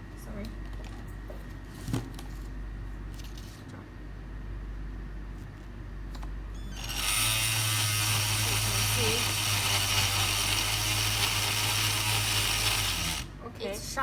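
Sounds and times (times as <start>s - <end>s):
bone saw running: 6.8s - 13.3s.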